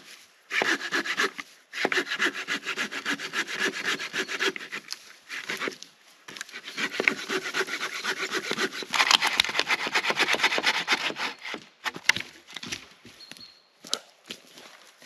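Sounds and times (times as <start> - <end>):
hand saw cutting wood: 0.5 - 5.8, 6.4 - 12.2.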